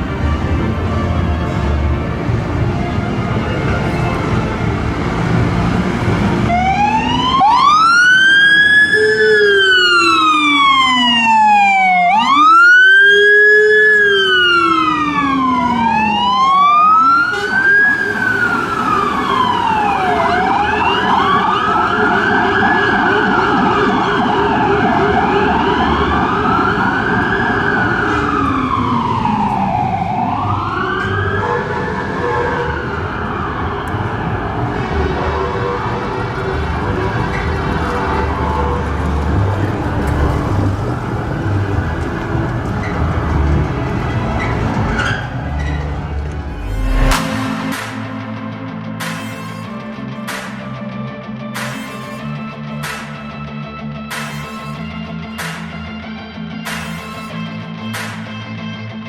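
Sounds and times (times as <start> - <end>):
fire engine sirens wailing: 0.0 - 58.3
truck engine running: 16.9 - 22.4, 25.2 - 49.0.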